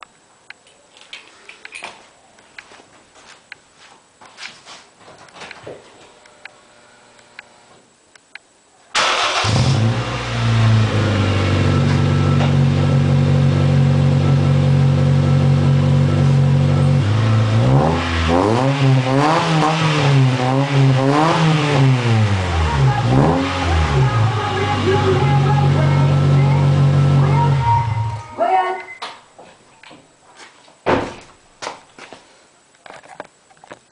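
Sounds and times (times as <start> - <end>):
car engine starting and idling: 8.9 - 28.3
car engine revving: 9.0 - 28.2.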